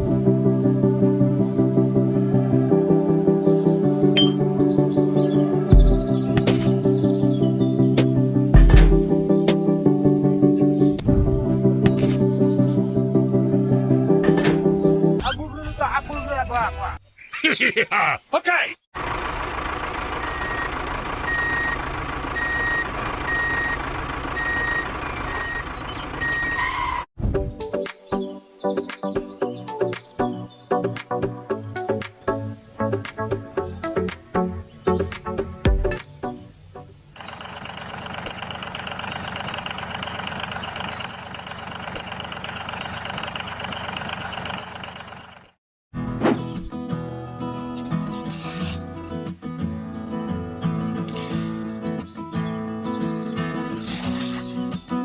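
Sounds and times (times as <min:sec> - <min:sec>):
reversing alarm beeping: 0:04.2 - 0:04.4, 0:20.2 - 0:27.0
engine running with fast pulse: 0:19.0 - 0:26.6, 0:37.2 - 0:45.6.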